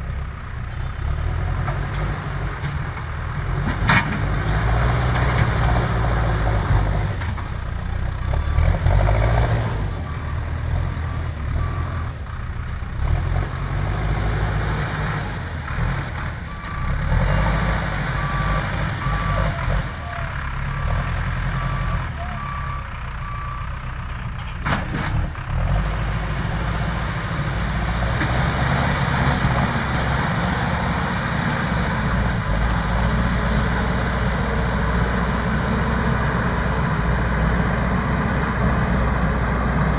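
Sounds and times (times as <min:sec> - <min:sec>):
diesel engine running under load: 0:00.0 - 0:39.9
reversing alarm beeping: 0:16.5 - 0:23.8.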